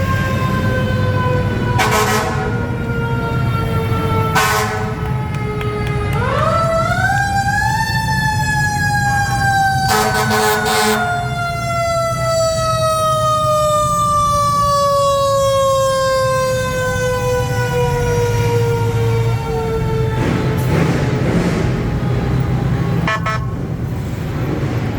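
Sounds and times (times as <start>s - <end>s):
siren wail: 0.0s - 20.8s, 21.7s - 23.8s
short siren blast: 8.8s - 13.4s.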